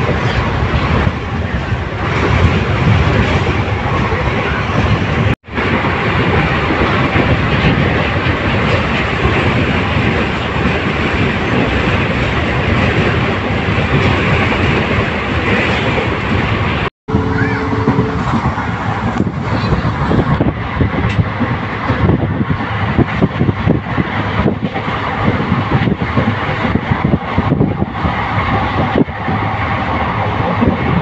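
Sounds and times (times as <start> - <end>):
train wheels on rails: 0.0 - 31.0
rushing air: 12.2 - 31.0.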